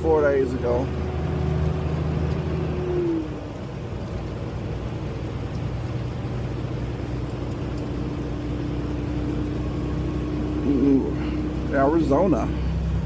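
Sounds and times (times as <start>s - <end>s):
truck engine and road noise: 0.0s - 13.0s.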